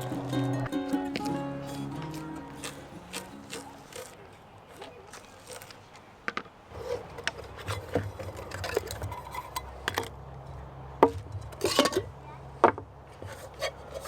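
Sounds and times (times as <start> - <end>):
low steady hum: 0.0 - 5.7.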